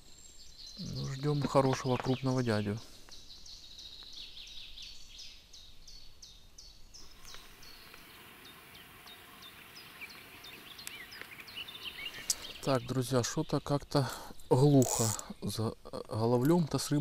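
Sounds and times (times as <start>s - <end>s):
songbird chirping: 0.0s - 17.0s
bird gliding calls: 7.0s - 12.7s.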